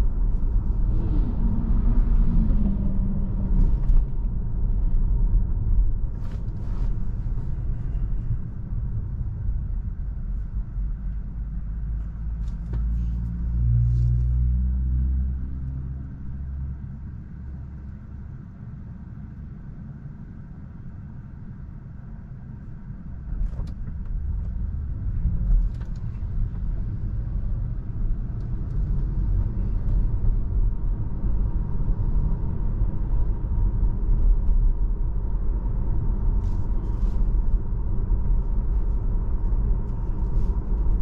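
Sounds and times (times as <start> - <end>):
deep hum: 0.0 - 11.7
car road and tyre noise: 0.0 - 41.0.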